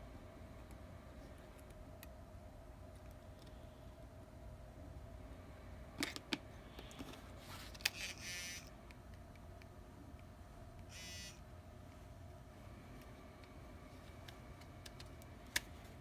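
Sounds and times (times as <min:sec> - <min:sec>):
phone buzzes: 0:10.9 - 0:11.4.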